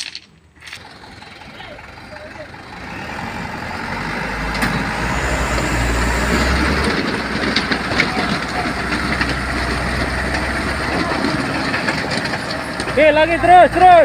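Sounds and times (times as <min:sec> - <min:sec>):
stones clicking: 0:00.0 - 0:00.8
truck diesel engine under load: 0:00.6 - 0:14.0
tyres crunching over gravel: 0:06.2 - 0:14.0.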